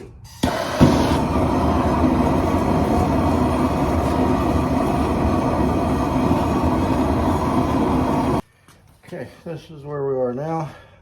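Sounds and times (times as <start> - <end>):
gas torch flame rushing: 0.3 - 8.4.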